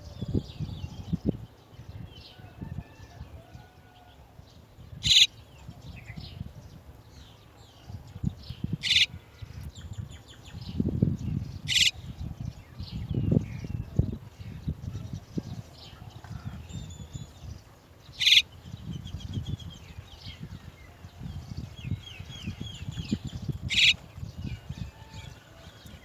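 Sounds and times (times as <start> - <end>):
starlings raspy calls: 5.0 - 5.4, 8.7 - 9.4, 11.6 - 12.1, 18.1 - 18.6, 23.6 - 24.0
faint bird chirps: 5.0 - 5.7, 11.6 - 12.1, 18.2 - 18.5.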